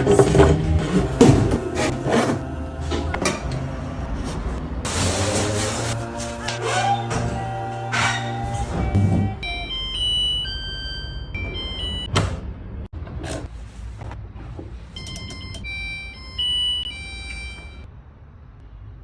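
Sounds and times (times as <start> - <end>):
washing machine beeping tune: 6.4 - 12.9, 15.0 - 17.9.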